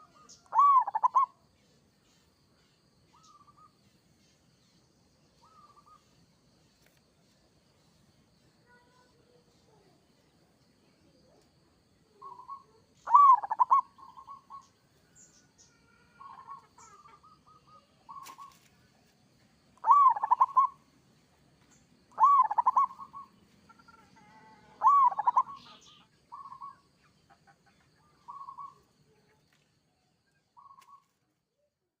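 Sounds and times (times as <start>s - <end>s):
dove cooing: 0.0s - 1.4s, 12.2s - 14.6s, 19.8s - 20.8s, 22.2s - 26.8s, 28.2s - 28.8s.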